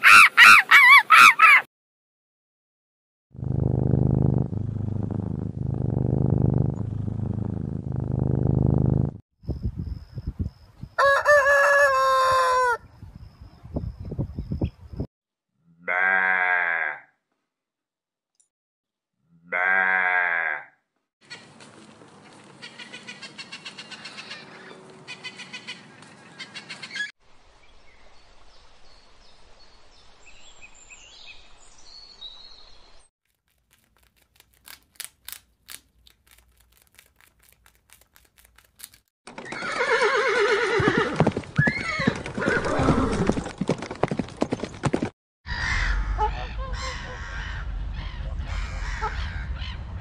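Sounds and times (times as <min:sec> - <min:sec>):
parrot squawking: 0:00.0 - 0:01.7
horse whinnying: 0:39.4 - 0:43.5.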